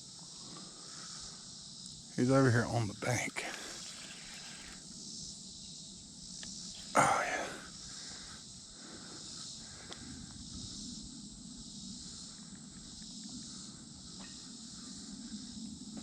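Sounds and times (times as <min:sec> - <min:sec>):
insect chorus chirring: 0:00.0 - 0:16.0.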